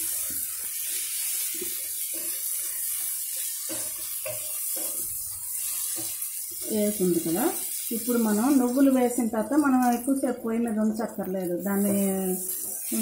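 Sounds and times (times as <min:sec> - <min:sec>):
spatula stirring: 0:00.0 - 0:07.8, 0:11.5 - 0:13.0
curry sizzling in oil: 0:00.0 - 0:13.0.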